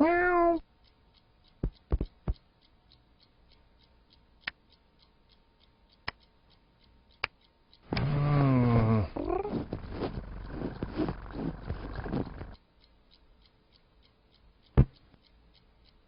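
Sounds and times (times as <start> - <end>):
cat meowing: 0.0 - 0.6
faint regular ticking: 0.0 - 16.0
light knocks and clicks: 1.6 - 2.4.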